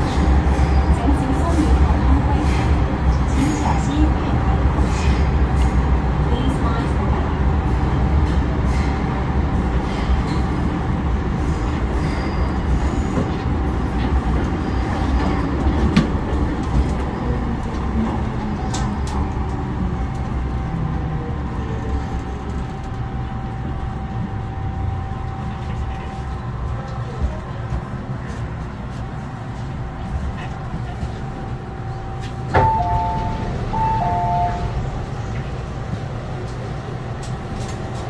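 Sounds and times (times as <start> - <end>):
train interior rumble: 0.0 - 38.0
train motor tone: 31.9 - 35.1.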